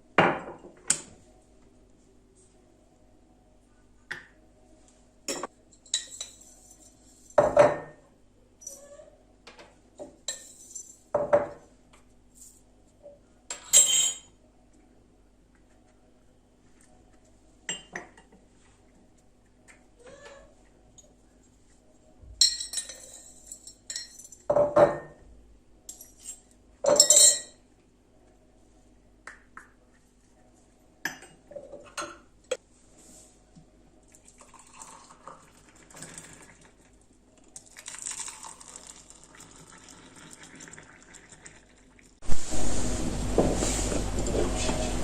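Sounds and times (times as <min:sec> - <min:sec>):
dishes and cutlery clattering: 0:05.3 - 0:08.0, 0:13.5 - 0:14.3, 0:22.4 - 0:25.2, 0:25.9 - 0:27.6.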